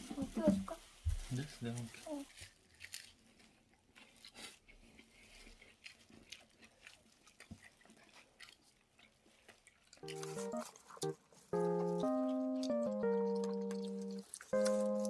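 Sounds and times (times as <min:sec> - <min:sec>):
chewing crisp food: 0:01.4 - 0:15.0
small crackly clicks: 0:09.4 - 0:15.0.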